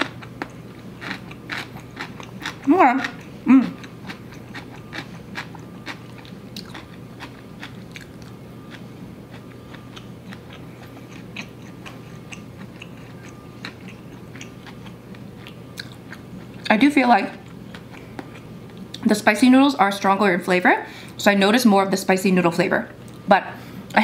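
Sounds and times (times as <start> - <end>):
chewing noodles: 0.0 - 16.7.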